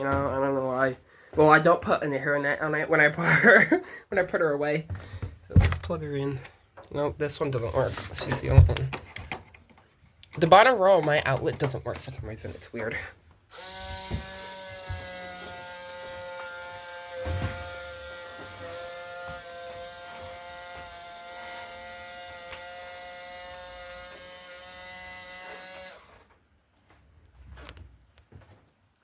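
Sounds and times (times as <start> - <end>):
small electric motor whine: 13.5 - 26.3.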